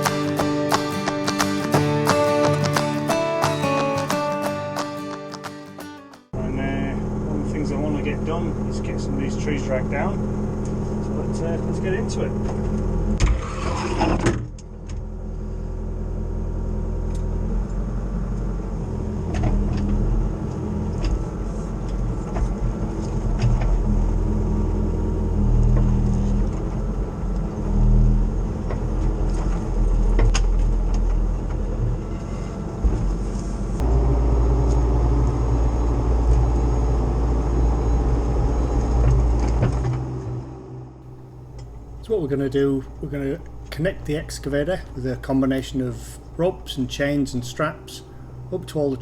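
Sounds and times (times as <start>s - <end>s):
excavator diesel engine running: 6.4s - 14.0s, 14.7s - 49.0s.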